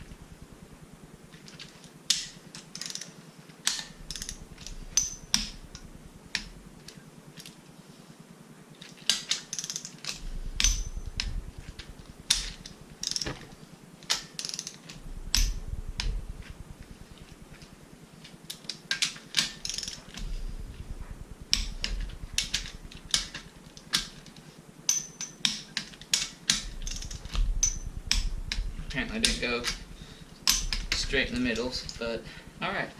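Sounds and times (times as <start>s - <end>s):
ratchet wrench clicking: 2.1s - 3.1s, 3.7s - 6.5s, 9.1s - 13.3s, 14.1s - 17.0s, 18.9s - 24.2s, 24.9s - 32.2s.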